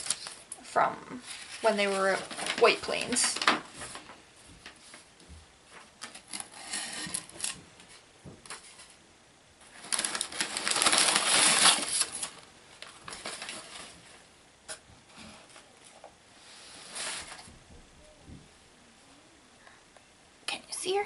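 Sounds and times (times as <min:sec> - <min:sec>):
packaging rustling: 0:00.0 - 0:05.1, 0:09.6 - 0:14.2.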